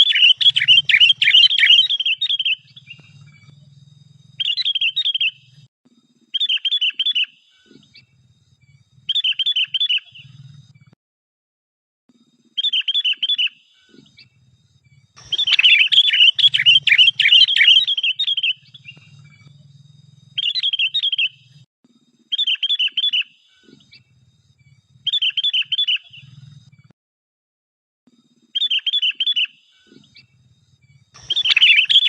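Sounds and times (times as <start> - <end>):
bird chattering calls: 0.0 - 3.5, 4.3 - 5.5, 15.2 - 19.5, 20.4 - 21.6, 31.2 - 32.0.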